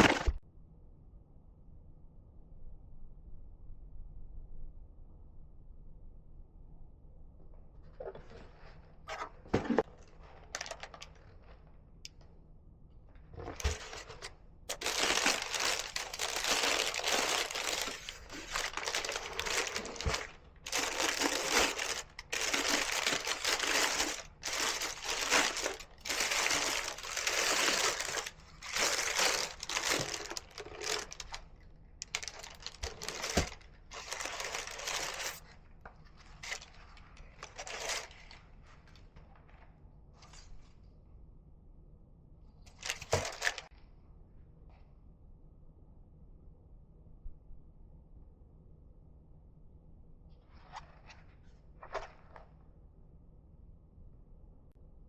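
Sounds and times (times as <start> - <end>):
paper crinkling and rustling: 0.0 - 0.4, 8.0 - 11.7, 13.3 - 39.6, 42.7 - 43.7.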